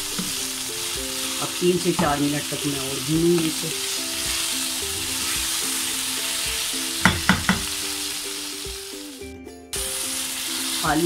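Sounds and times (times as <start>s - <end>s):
meat and potatoes sizzling: 0.0s - 11.0s
spoon knocking against pot: 7.0s - 7.8s.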